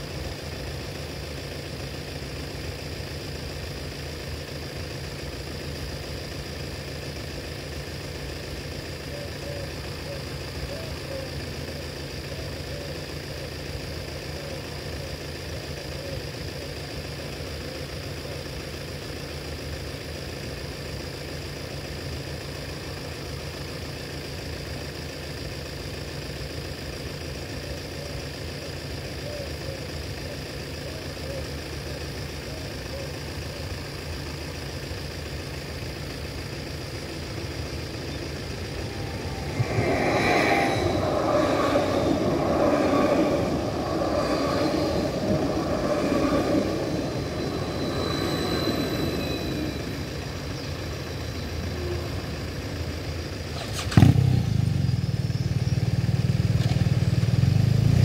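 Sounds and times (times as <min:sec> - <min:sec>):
low engine rumble: 0:00.0 - 0:58.0
vehicle engine idling: 0:00.0 - 0:58.0
electric train passing: 0:30.4 - 0:56.5.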